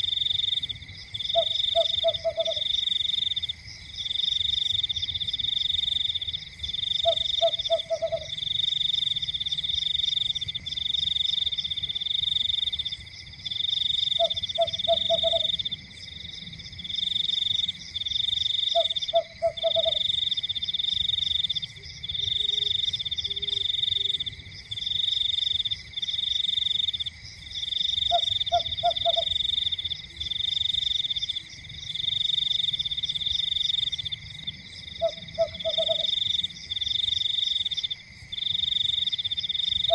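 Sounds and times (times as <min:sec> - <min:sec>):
frog high-pitched trill: 0:14.2 - 0:15.6.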